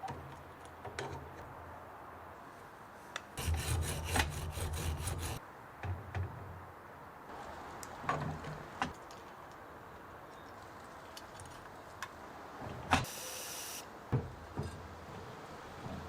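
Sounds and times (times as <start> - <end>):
short burst of hiss: 13.1 - 13.8.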